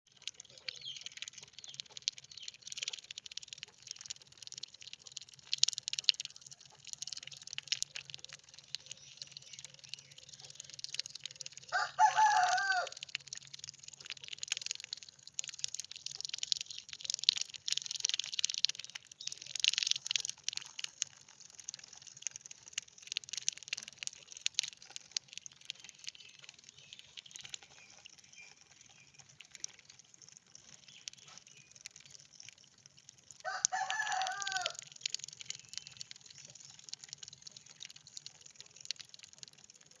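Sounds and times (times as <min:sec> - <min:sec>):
rooster crowing: 0:11.7 - 0:13.0, 0:33.4 - 0:34.8.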